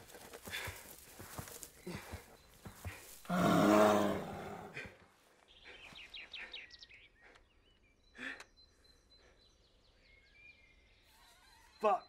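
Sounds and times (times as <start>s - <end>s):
bird chirps: 5.3s - 12.0s.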